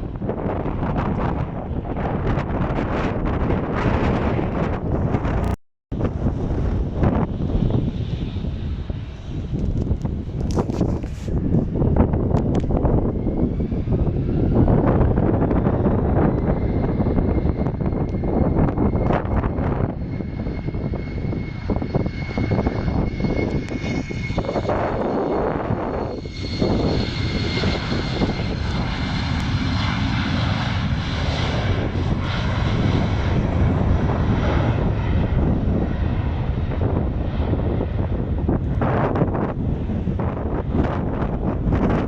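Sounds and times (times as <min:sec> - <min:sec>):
jet airliner taking off: 0:00.0 - 0:42.0.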